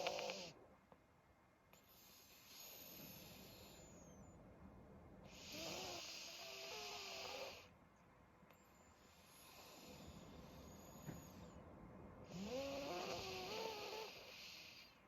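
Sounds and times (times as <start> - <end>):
dog snoring with whistle: 0.0 - 0.6, 1.8 - 4.4, 5.2 - 7.7, 9.0 - 11.6, 12.2 - 15.0.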